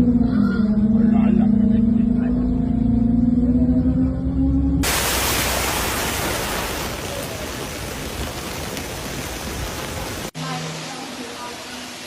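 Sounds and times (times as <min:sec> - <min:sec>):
floodwater rushing: 0:04.8 - 0:12.0.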